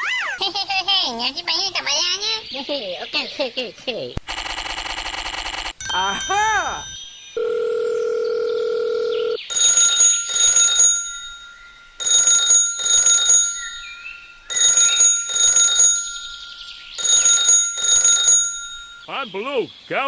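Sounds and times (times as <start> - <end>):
telephone bell ringing: 4.3 - 19.1.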